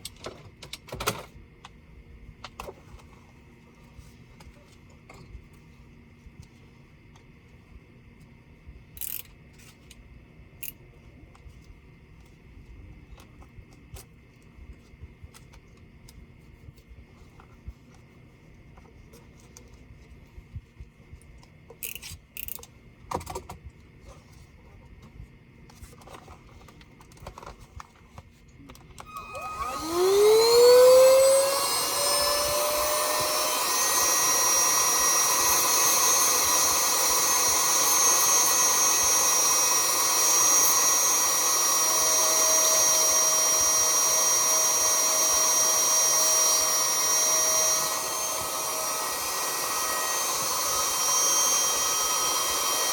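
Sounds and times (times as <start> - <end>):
clicks of small parts handled: 9.0 - 10.0
small electric motor whining: 29.0 - 52.9.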